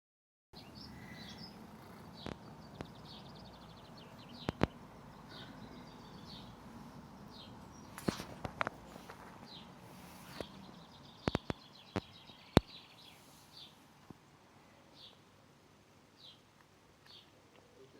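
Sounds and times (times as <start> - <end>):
small birds chirping: 0.6 - 17.9
steady outdoor hiss: 0.6 - 17.9
sharp close clicks: 4.4 - 4.8.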